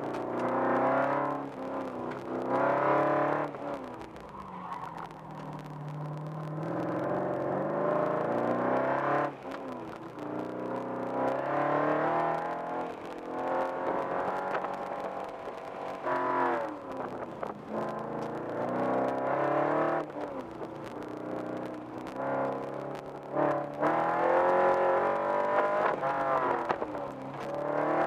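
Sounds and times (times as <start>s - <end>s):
car engine revving in cabin: 0.0s - 4.3s, 5.0s - 28.0s.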